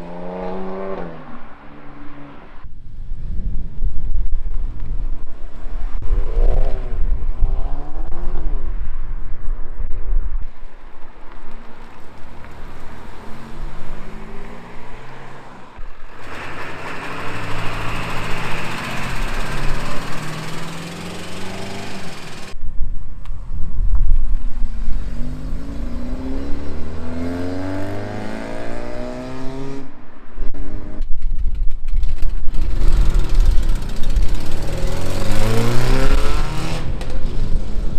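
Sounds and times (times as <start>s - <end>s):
car engines revving and accelerating: 0.0s - 2.7s, 5.4s - 8.8s, 11.2s - 22.6s, 24.5s - 31.1s, 32.6s - 37.9s
loud exhaust: 15.6s - 22.6s, 32.5s - 37.9s.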